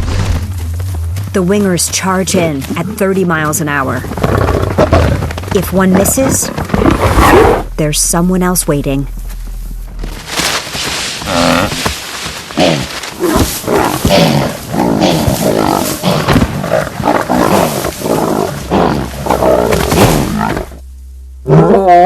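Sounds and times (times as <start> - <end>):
lions growling and roaring: 3.9 - 7.7, 11.2 - 20.8, 21.4 - 22.0.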